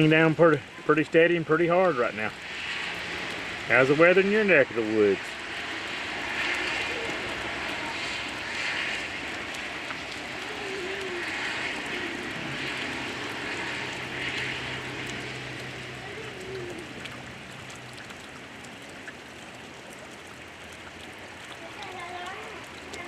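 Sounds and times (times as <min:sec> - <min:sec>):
hard rain hissing: 0:00.0 - 0:23.0.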